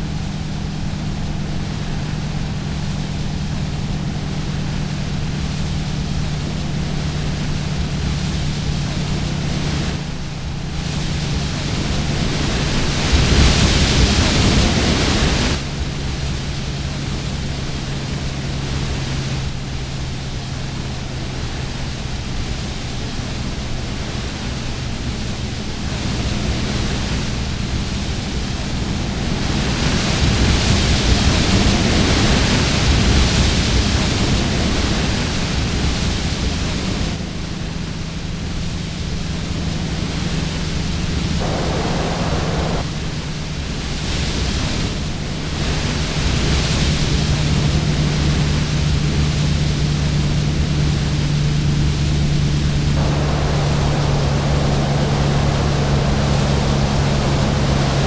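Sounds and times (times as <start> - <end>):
road and wind noise: 33.8 - 43.4, 44.6 - 58.0
low engine drone: 37.8 - 43.4, 46.9 - 58.0.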